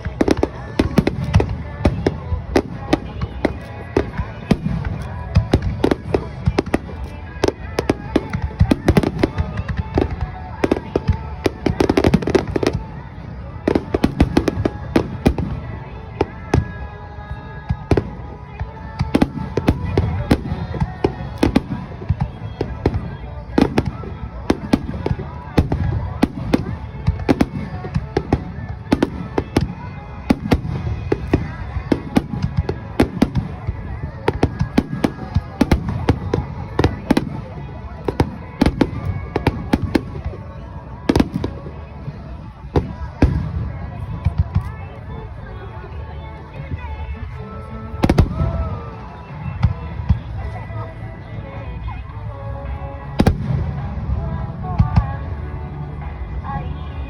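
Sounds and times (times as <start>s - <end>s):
fireworks bangs and crackles: 0.0s - 51.8s, 52.8s - 57.0s.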